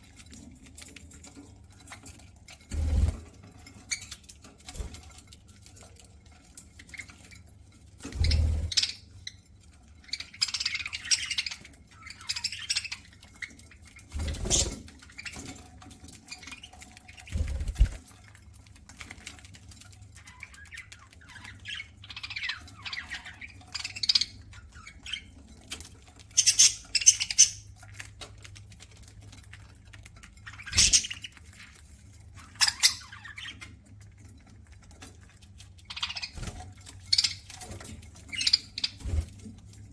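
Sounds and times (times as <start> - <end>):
birds pecking seed: 0.0 - 39.9
budgerigars chirping and squawking: 8.0 - 18.0, 20.2 - 28.1, 30.3 - 33.8, 35.8 - 39.4.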